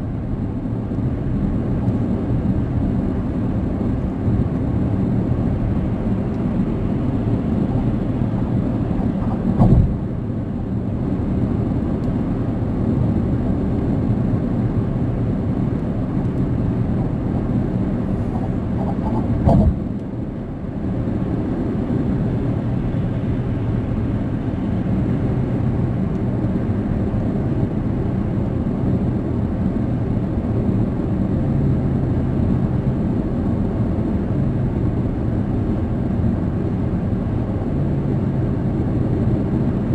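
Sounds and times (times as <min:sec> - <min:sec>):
car cabin road and engine noise: 0:00.0 - 0:39.9
loud bumps: 0:09.0 - 0:10.0, 0:18.3 - 0:19.8.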